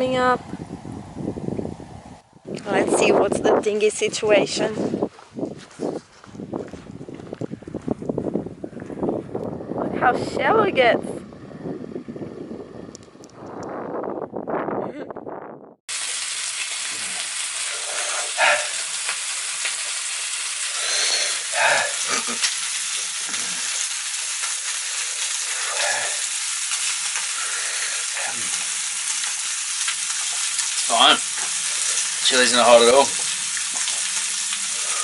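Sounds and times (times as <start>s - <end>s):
food sizzling in a frying pan: 15.9s - 35.0s.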